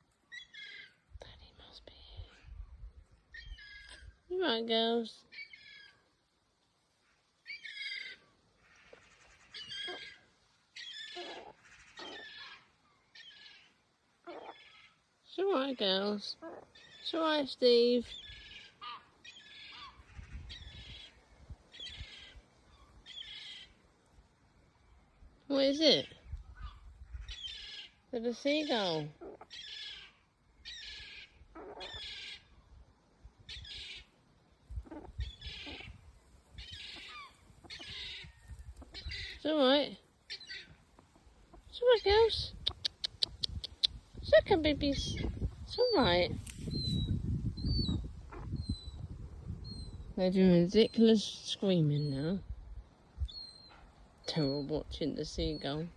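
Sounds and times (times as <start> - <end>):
high-pitched bird calls: 8.8 - 10.2, 10.8 - 15.0, 36.6 - 39.7
birds squawking: 26.6 - 32.5, 36.6 - 41.1.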